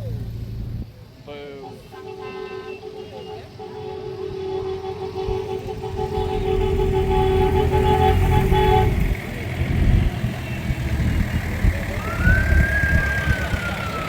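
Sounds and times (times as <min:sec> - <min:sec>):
low rumble of engines: 0:00.0 - 0:14.0
vehicle horn: 0:01.5 - 0:10.8
siren-like tone: 0:11.9 - 0:14.0.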